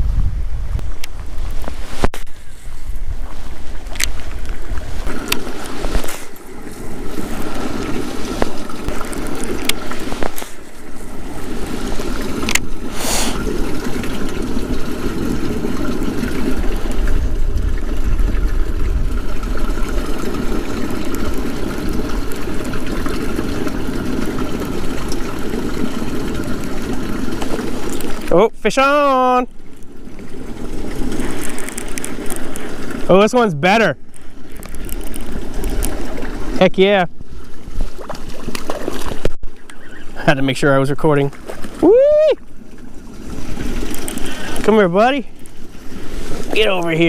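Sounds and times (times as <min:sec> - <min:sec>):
wind buffeting microphone: 0:00.0 - 0:05.6, 0:06.5 - 0:25.5.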